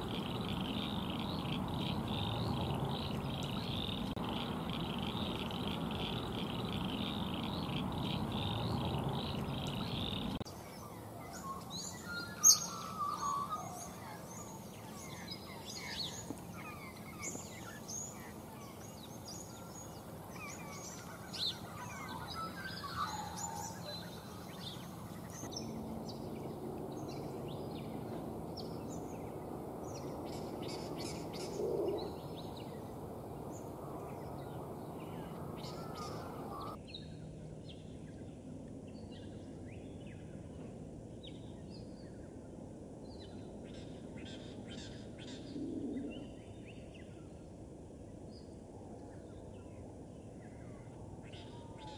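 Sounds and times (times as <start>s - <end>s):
birds chirping and twittering: 0.0s - 42.5s
low outdoor background hum: 0.0s - 51.9s.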